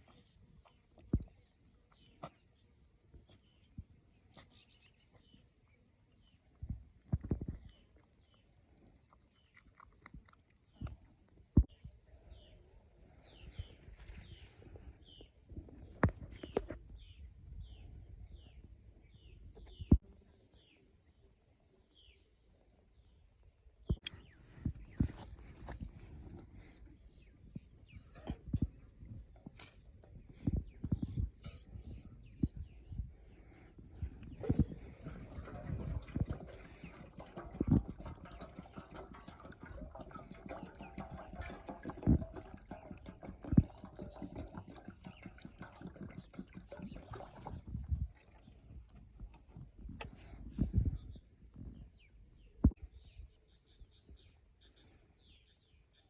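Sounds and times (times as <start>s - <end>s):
water clicks and splashes: 34.2s - 50.2s
bird chirping: 50.2s - 56.0s.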